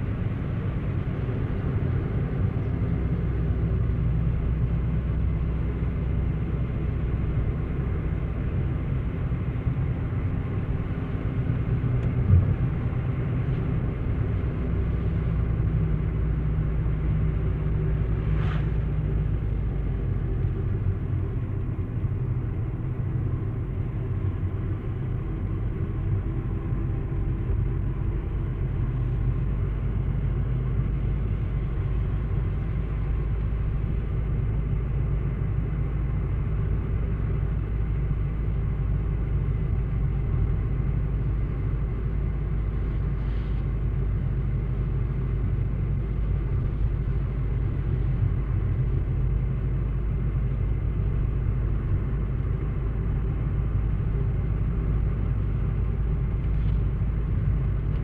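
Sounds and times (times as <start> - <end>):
steady low rumble: 0.0 - 58.0.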